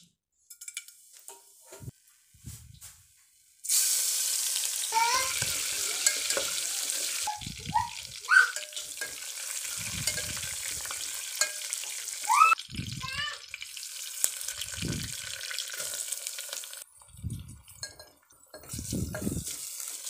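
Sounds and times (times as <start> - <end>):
hot oil sizzling: 3.4 - 20.0
spatula scraping pan: 4.9 - 7.3.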